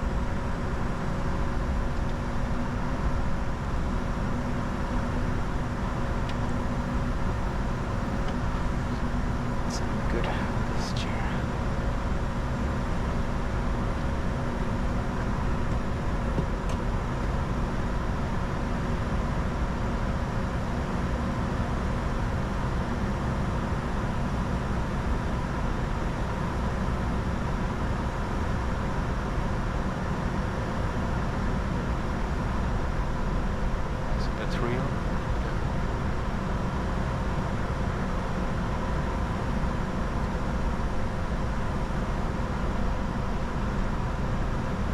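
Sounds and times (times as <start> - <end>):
airflow and jet engine drone: 0.0 - 44.9
steady hums: 2.6 - 12.8.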